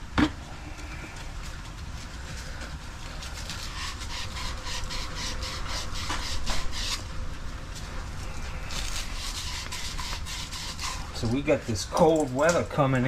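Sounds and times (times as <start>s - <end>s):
abrasive rasping on copper pipe: 3.1s - 7.1s, 8.2s - 11.6s.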